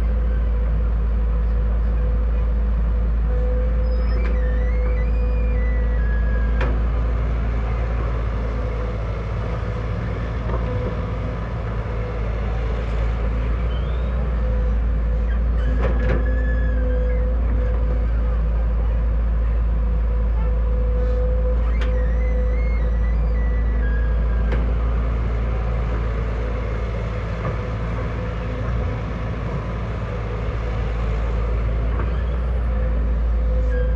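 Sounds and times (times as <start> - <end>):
diesel engine rumble: 0.0 - 33.9
metallic squeals: 13.7 - 17.4, 21.0 - 24.4.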